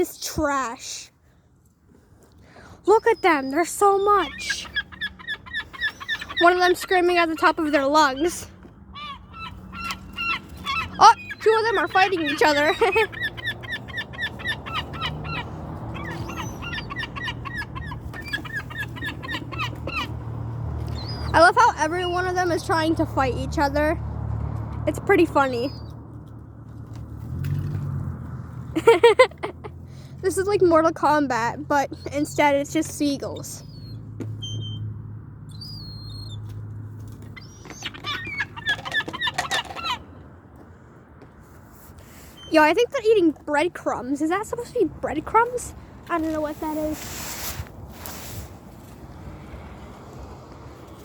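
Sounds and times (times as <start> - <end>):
gulls squawking: 2.9 - 24.0, 25.0 - 25.9, 37.3 - 40.1.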